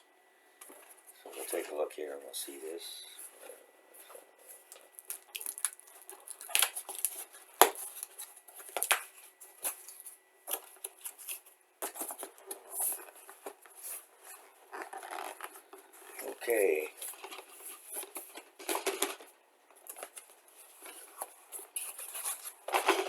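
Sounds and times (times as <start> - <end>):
cardboard scraping and rustling: 6.0 - 23.0.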